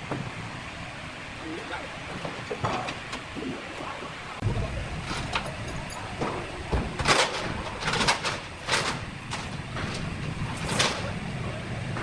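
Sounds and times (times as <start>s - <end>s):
sawmill machinery running: 0.0s - 12.0s.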